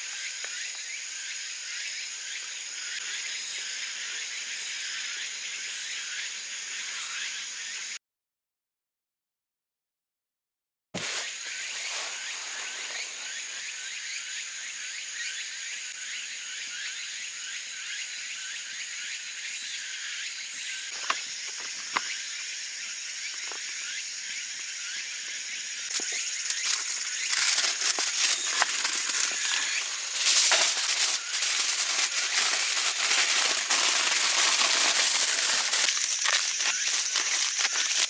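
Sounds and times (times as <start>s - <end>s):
campfire crackling and popping: 25.9s - 38.0s.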